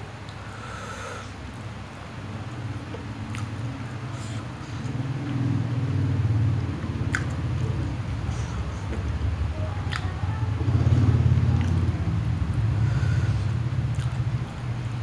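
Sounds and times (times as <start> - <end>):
loud steady low hum: 0.0 - 15.0
chewing noodles: 2.8 - 5.4, 6.8 - 9.1, 9.8 - 14.4
wet mouth clicks: 2.9 - 5.4, 6.8 - 7.8, 9.8 - 10.2, 13.9 - 14.3.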